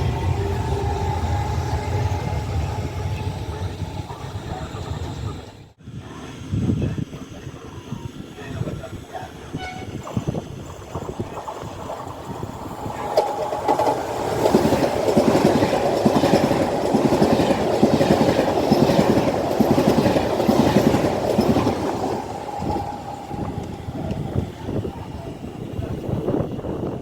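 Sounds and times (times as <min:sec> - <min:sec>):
steady whine: 0:00.0 - 0:05.8
train wheels clacking: 0:10.0 - 0:26.3.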